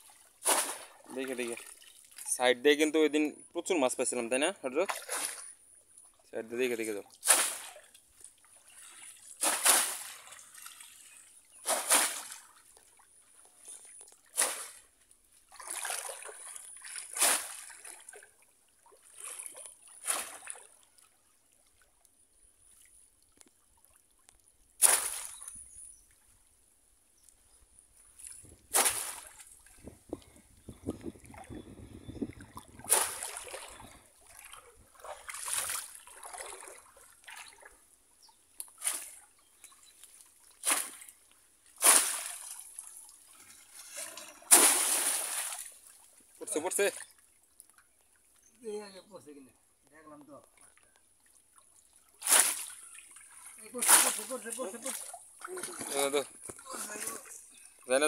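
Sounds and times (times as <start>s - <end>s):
water splashing: 0.0s - 2.4s, 4.7s - 5.6s, 6.8s - 14.9s, 15.5s - 21.0s, 23.6s - 25.7s, 28.1s - 37.8s, 38.6s - 47.8s, 51.9s - 58.0s.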